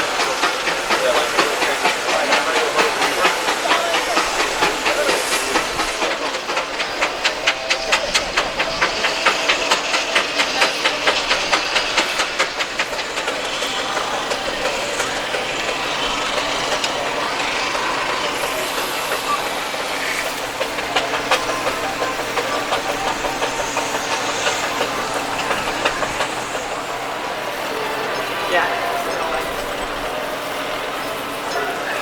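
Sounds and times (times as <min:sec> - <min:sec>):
steam engine chuffing: 0:00.0 - 0:32.0
steam hissing: 0:00.0 - 0:32.0.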